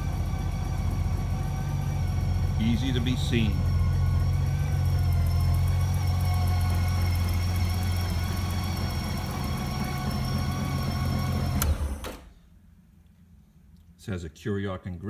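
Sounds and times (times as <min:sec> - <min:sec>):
motorcycle engine idling: 0:00.0 - 0:10.4.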